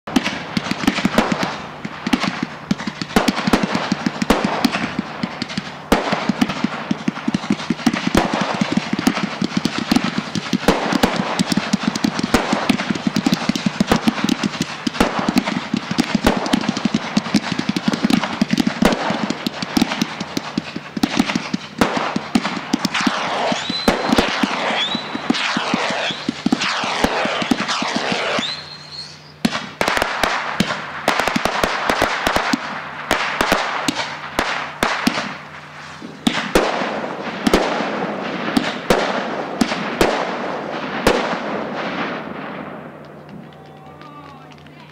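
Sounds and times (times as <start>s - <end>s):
fireworks crackling and banging: 0.0s - 44.9s
rising firework whistles: 7.2s - 40.2s.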